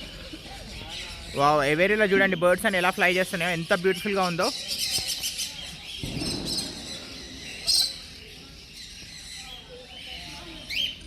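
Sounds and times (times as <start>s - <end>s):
birds chirping and calling: 0.0s - 11.0s
loud shrill bird call: 6.0s - 9.6s.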